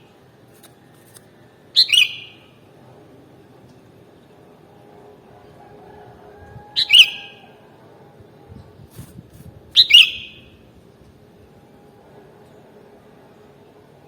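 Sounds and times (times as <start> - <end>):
bulbul calls: 1.8 - 2.4, 6.8 - 7.5, 9.8 - 10.5.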